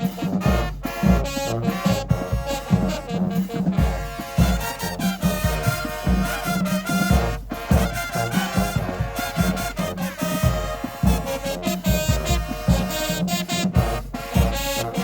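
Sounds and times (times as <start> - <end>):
brass section: 0.0 - 15.0
drums beating: 0.0 - 15.0
marching band playing: 0.0 - 15.0.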